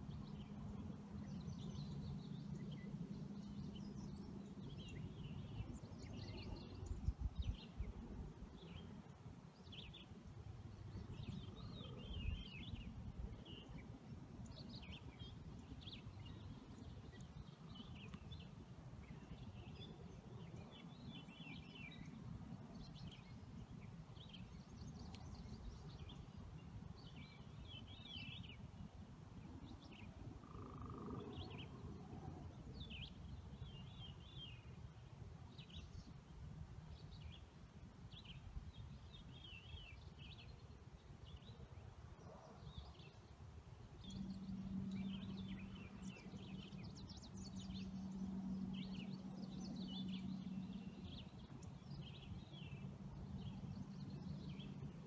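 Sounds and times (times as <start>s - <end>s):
faint bird chirps and trills: 0.0s - 36.2s, 36.9s - 55.0s
steady low hum: 43.7s - 55.0s.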